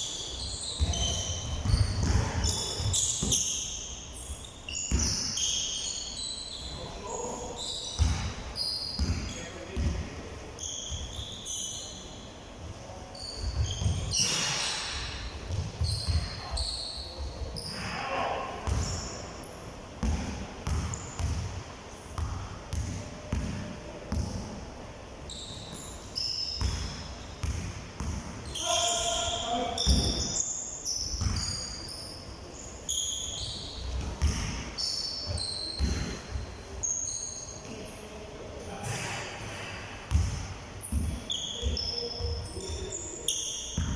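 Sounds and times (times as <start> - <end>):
sneakers squeaking on floor: 0.0 - 12.3, 13.0 - 24.5, 25.2 - 38.0, 38.8 - 43.9
basketball bouncing: 0.8 - 3.4, 8.0 - 8.3, 9.0 - 10.0, 15.5 - 16.4, 18.6 - 19.0, 20.0 - 21.5, 22.2 - 24.4, 26.6 - 28.4, 31.2 - 31.6, 34.0 - 34.7, 35.3 - 36.2, 40.1 - 42.4
ball bouncing on hard floor: 20.0 - 21.5, 35.3 - 36.2, 40.1 - 42.8.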